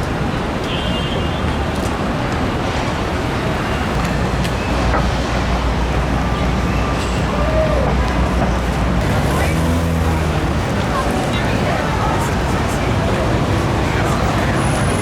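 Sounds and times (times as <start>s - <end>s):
street traffic noise: 0.0s - 15.0s
low heavy engine drone: 4.2s - 15.0s.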